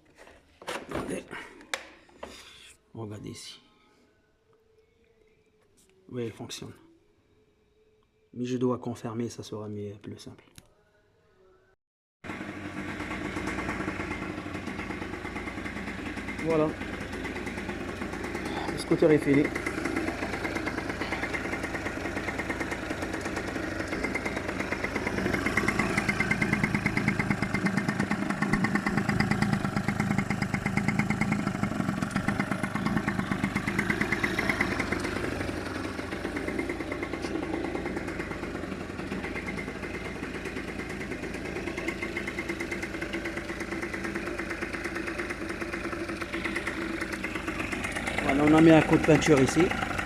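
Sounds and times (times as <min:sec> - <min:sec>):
scooter engine idling: 0:12.3 - 0:50.0.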